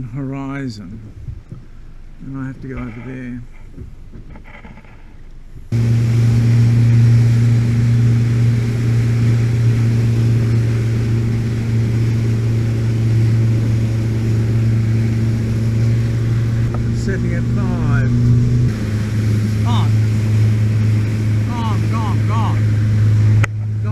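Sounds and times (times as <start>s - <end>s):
boat motor humming: 0.0s - 23.9s
wind: 0.0s - 23.9s
water hiss: 5.8s - 23.9s.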